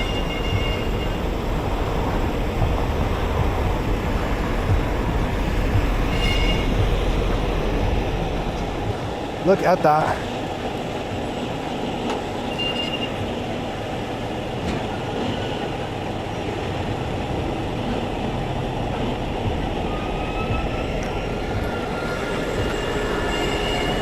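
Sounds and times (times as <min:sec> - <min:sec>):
heavy machinery rumble: 0:00.0 - 0:24.0
high metallic squeal: 0:06.0 - 0:07.8, 0:12.5 - 0:13.2, 0:19.9 - 0:24.0.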